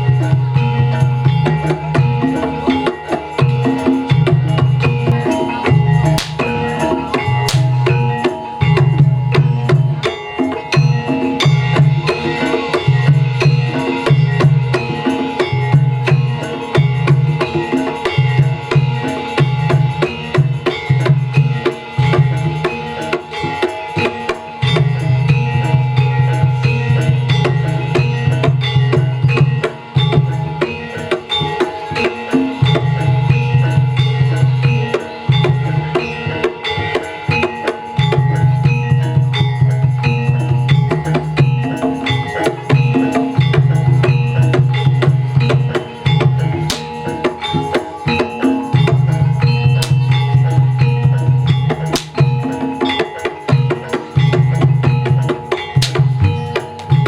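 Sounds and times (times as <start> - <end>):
rapid hand drumming: 0.0 - 57.0
held metallic tone: 38.6 - 57.0.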